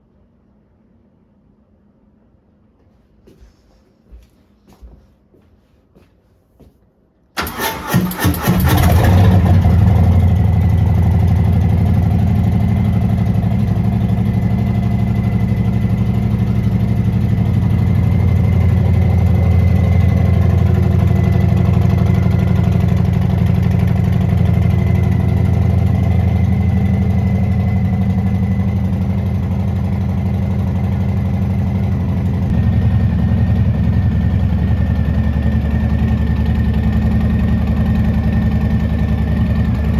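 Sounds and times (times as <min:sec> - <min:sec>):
electric starter cranking: 0:07.4 - 0:10.0
motorcycle engine idling: 0:08.2 - 0:39.9.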